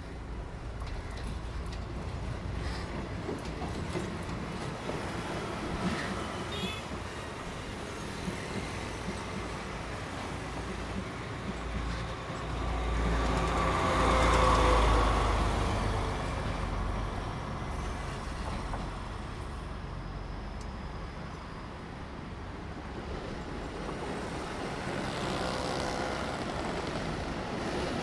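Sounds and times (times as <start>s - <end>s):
train rumbling past: 0.0s - 28.0s.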